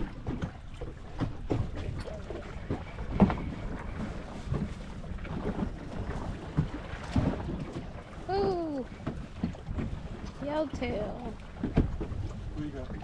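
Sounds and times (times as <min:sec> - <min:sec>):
waves slapping against hull: 0:00.0 - 0:13.0.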